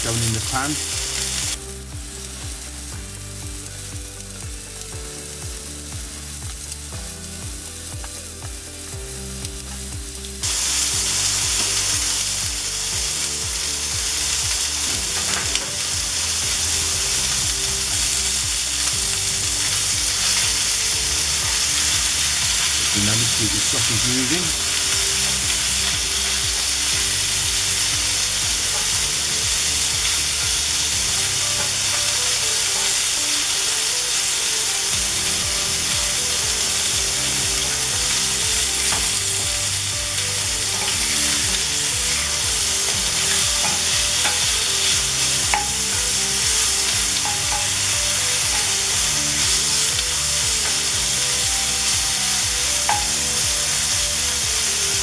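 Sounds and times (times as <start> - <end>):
meat sizzling in a skillet: 0.0 - 55.0
spatula tapping pan: 40.5 - 51.0, 52.9 - 53.2.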